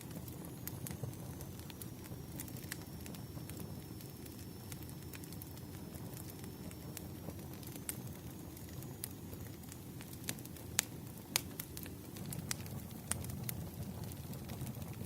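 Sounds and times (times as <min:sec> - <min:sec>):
campfire flames crackling and popping: 0:00.0 - 0:15.0.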